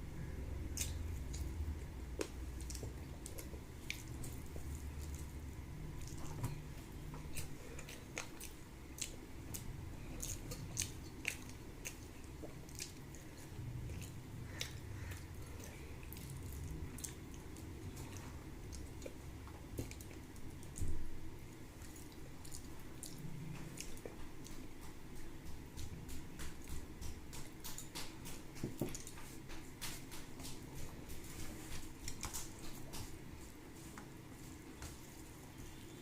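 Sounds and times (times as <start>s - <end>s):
person chewing with wet smacking: 0.1s - 36.0s.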